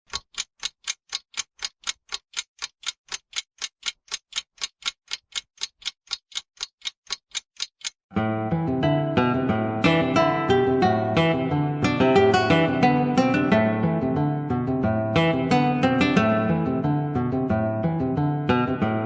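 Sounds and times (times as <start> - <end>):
rapid even ticking: 0.1 - 8.1
strummed acoustic guitar music: 8.1 - 19.0.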